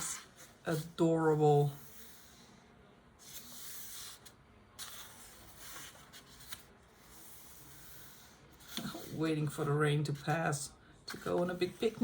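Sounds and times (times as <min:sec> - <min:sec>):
paper pages swishing: 0:04.8 - 0:06.7.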